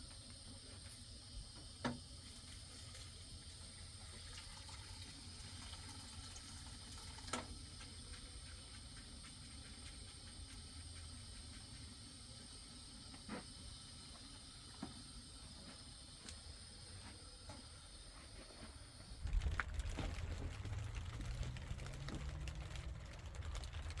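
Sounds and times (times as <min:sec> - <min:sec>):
light rain hiss: 0:19.2 - 0:24.0.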